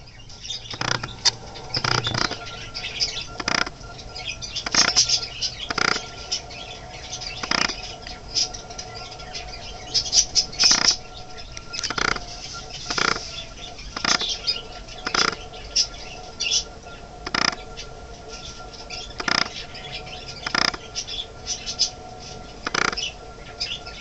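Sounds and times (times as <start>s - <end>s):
parakeets chirping: 0.0s - 24.0s
rasping bird bursts: 0.4s - 8.4s.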